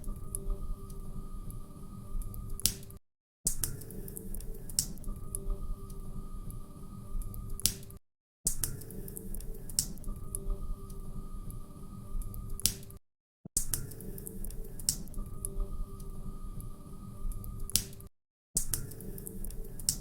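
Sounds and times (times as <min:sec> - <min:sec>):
sharp pops and snaps of fire: 0:07.6 - 0:08.9, 0:17.7 - 0:20.0.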